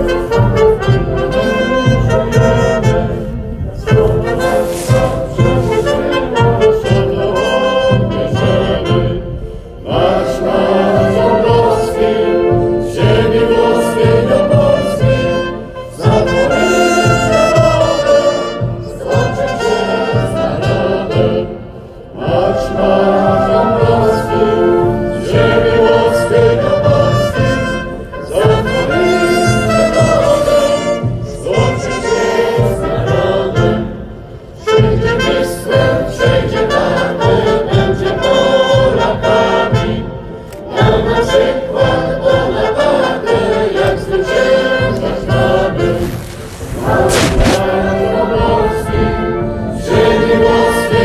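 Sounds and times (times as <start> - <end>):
brass band playing: 0.0 - 21.6, 45.7 - 48.3
many voices singing together: 0.0 - 51.0.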